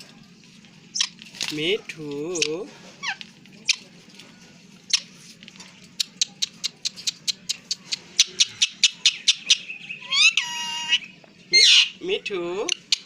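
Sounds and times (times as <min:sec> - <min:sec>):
parrot chirping: 0:00.9 - 0:01.2, 0:02.3 - 0:03.9, 0:04.8 - 0:05.3, 0:05.9 - 0:13.0.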